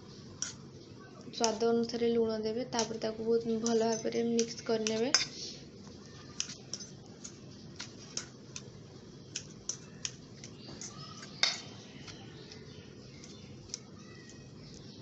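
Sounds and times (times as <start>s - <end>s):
spoon clicking in a bowl: 3.6s - 5.3s, 6.4s - 8.7s, 9.3s - 12.6s.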